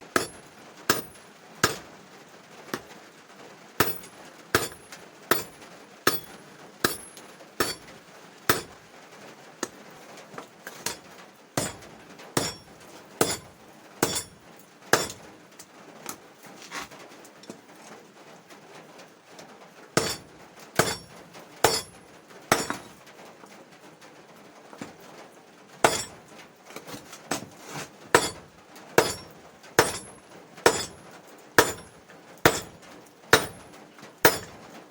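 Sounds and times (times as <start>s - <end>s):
hammer striking steel on anvil: 0.1s - 1.8s, 3.8s - 7.9s, 8.5s - 8.8s, 11.6s - 11.8s, 12.4s - 14.4s, 15.0s - 15.2s, 20.0s - 20.2s, 20.8s - 23.0s, 25.8s - 26.2s, 28.2s - 28.4s, 29.0s - 31.0s, 31.6s - 33.6s, 34.2s - 34.6s.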